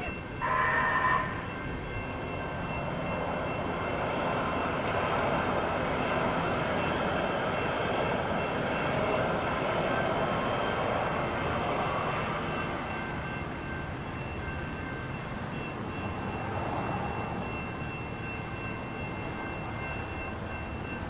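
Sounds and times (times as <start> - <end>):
train horn blast: 0.0 - 1.6
train wheels rumbling on rails: 0.0 - 21.0.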